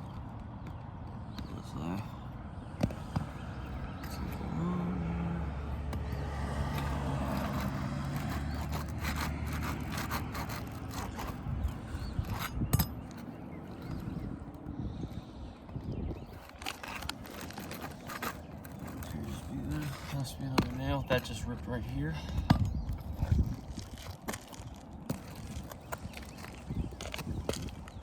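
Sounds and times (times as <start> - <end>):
vehicle engine humming: 0.8 - 12.3
roof shingles scraping: 6.3 - 14.2, 16.2 - 22.4, 23.0 - 28.0.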